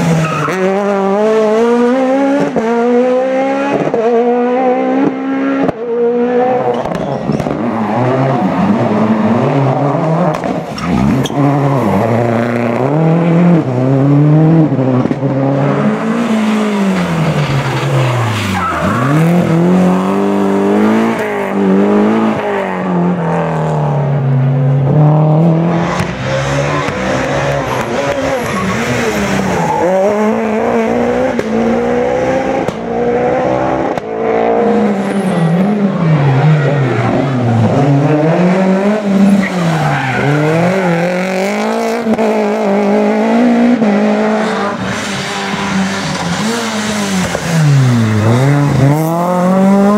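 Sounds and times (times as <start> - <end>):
rally car engines revving: 0.0 - 49.9
tyre squeal: 16.9 - 19.5.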